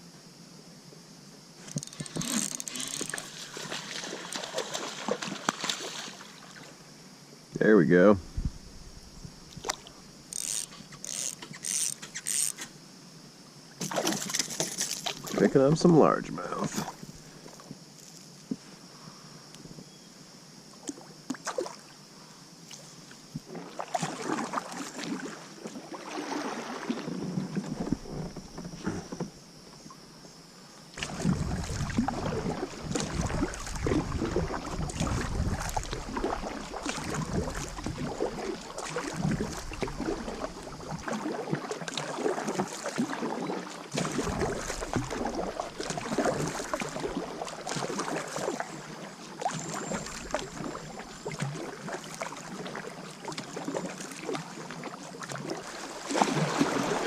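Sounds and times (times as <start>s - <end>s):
small clicks and knocks: 1.6s - 3.3s
water sloshing around kayak: 1.6s - 6.9s, 8.3s - 12.8s, 13.8s - 18.6s, 20.8s - 57.0s
wind on microphone: 8.2s - 9.6s, 31.0s - 38.4s.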